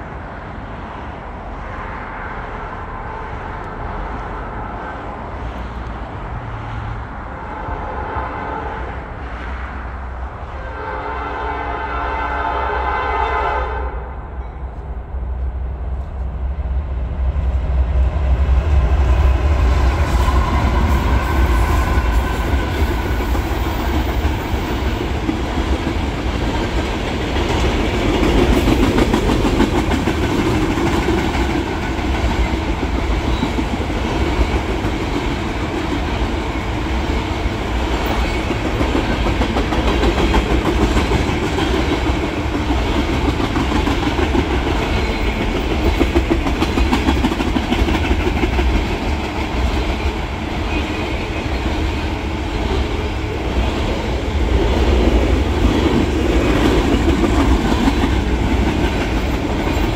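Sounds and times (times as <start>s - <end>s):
diesel locomotives rumbling: 0.0s - 59.9s
train horn chord: 10.6s - 14.2s.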